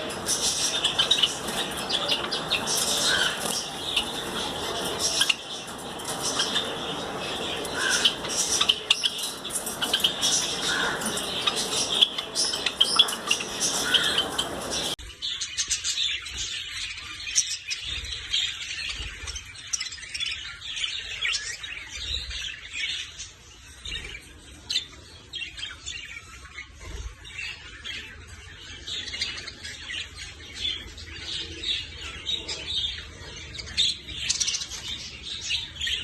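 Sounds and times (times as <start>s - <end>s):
finches chirping: 0.0s - 21.7s.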